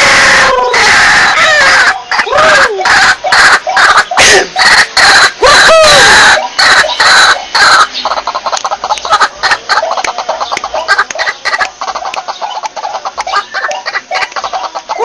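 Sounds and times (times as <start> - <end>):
waterhen calling harshly: 0.0 - 15.0.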